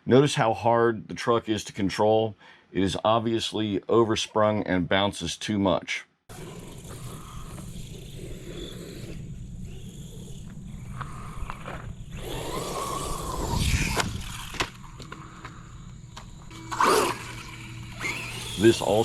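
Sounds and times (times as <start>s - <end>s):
tyres scraping on dirt: 6.3s - 15.5s, 16.2s - 19.0s
electric motor whine: 6.3s - 19.0s.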